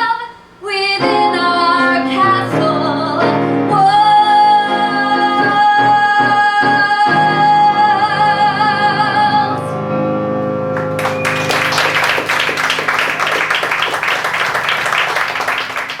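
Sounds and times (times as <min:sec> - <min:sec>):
woman singing with vibrato: 0:00.0 - 0:09.8
instrumental accompaniment: 0:09.7 - 0:15.3
audience applause: 0:10.8 - 0:16.0.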